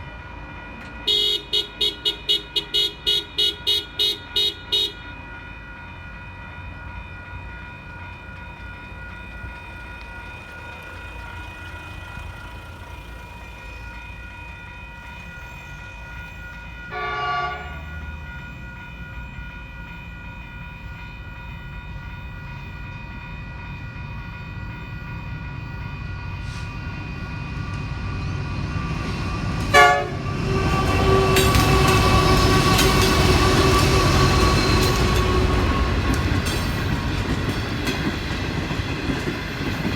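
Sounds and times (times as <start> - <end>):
diesel train engine: 0.0 - 39.9
train horn blasts: 1.0 - 5.1, 16.9 - 18.0, 29.4 - 36.4
train wheels rumbling and clattering: 4.4 - 16.9, 17.6 - 39.9.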